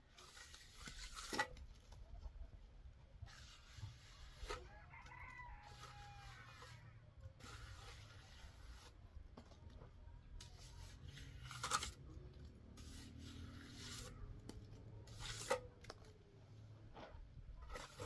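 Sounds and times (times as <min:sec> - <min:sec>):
rubbing scraping strokes: 0:00.1 - 0:01.6, 0:03.2 - 0:09.1, 0:10.4 - 0:15.8, 0:16.9 - 0:18.0.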